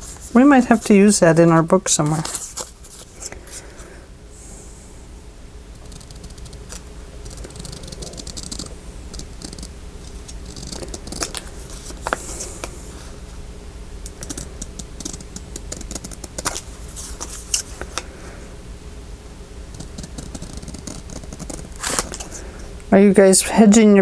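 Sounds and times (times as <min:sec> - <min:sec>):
paper rustling: 0:00.0 - 0:03.9, 0:06.2 - 0:13.4, 0:14.1 - 0:18.1, 0:19.7 - 0:22.7
steady low hum: 0:00.0 - 0:24.0.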